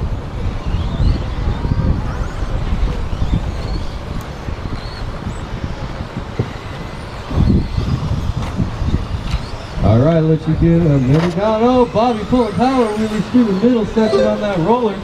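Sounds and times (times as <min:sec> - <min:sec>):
wind buffeting microphone: 0:00.0 - 0:15.0
electric motor whines: 0:10.5 - 0:15.0.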